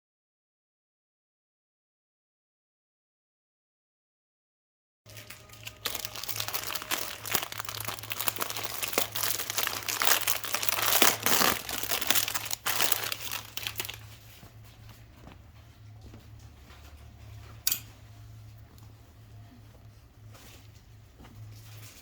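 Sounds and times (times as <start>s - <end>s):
plastic packaging crinkling: 5.1s - 14.4s.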